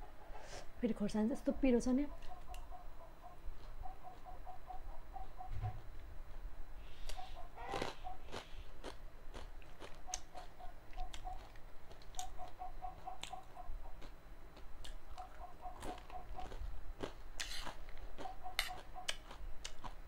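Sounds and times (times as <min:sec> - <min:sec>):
crunching and chewing snack: 0:07.0 - 0:20.0.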